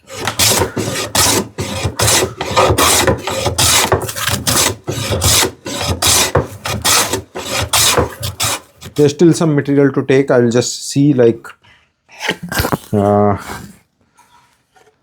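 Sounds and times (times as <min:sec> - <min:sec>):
hand plane rasping on wood: 0:00.0 - 0:09.1.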